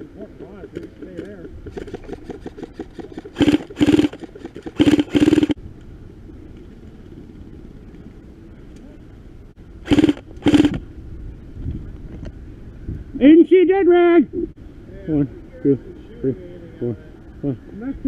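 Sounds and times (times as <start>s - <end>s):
airsoft rifle bursts: 1.7s - 5.6s, 9.9s - 10.8s.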